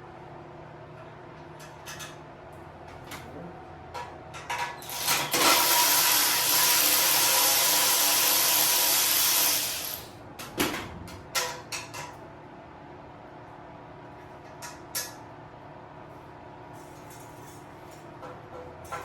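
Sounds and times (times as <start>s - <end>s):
power tool whirring: 4.8s - 10.1s.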